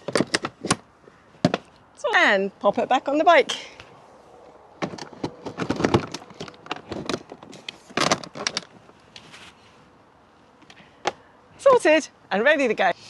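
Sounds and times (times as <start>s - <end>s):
bag clicking and rattling: 4.8s - 8.8s.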